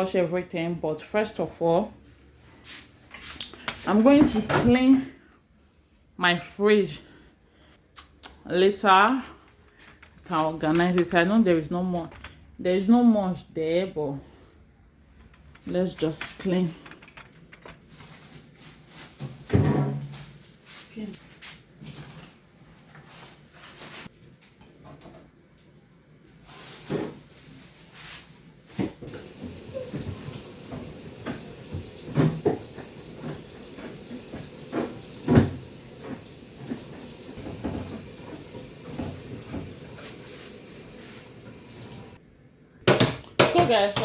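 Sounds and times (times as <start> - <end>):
fridge shelves and drawers clattering: 15.1 - 20.7, 26.4 - 40.4.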